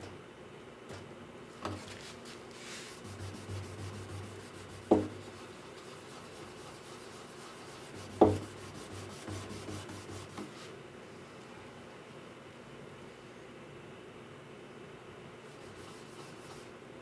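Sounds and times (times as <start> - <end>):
rubbing strokes on guitar wood: 1.8 - 10.7, 15.5 - 16.7.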